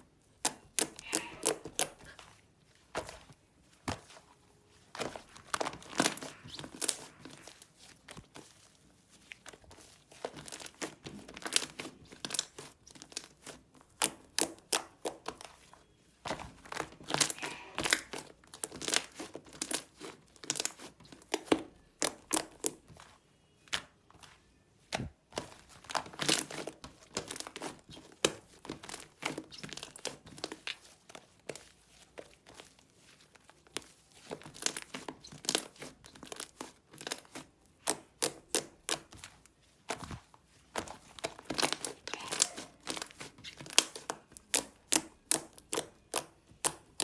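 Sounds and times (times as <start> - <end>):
slime squished by hand: 0.3 - 4.2, 4.8 - 47.0.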